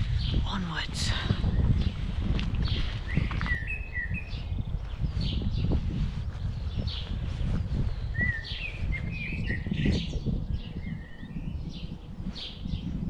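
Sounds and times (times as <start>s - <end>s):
wind rumble on microphone: 0.0s - 13.0s
whistled bird calls: 3.1s - 4.4s, 8.1s - 10.1s.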